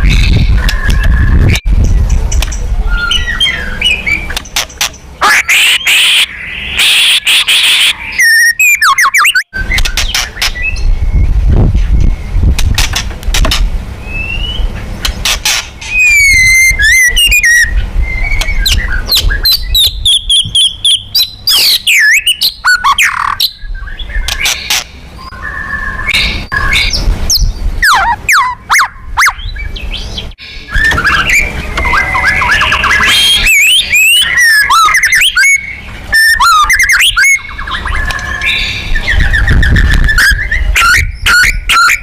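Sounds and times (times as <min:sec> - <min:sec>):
songbird whistling and trilling: 0:00.0 - 0:02.0, 0:02.8 - 0:04.4, 0:05.2 - 0:12.4, 0:14.0 - 0:14.7, 0:15.8 - 0:42.0
sharp bird clicks: 0:24.2 - 0:25.0.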